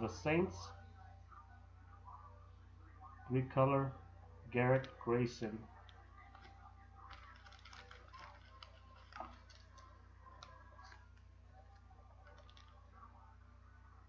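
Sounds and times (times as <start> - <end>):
steady low hum: 0.0 - 14.0
trading cards clicking and rustling: 5.8 - 12.9.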